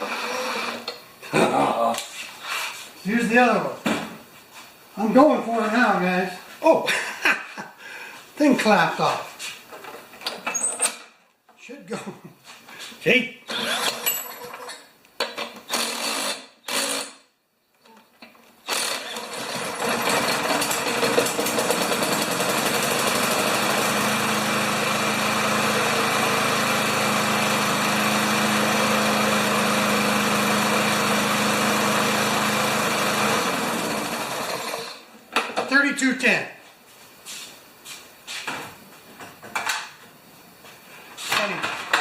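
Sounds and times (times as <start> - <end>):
lawn mower engine running: 18.7 - 35.1.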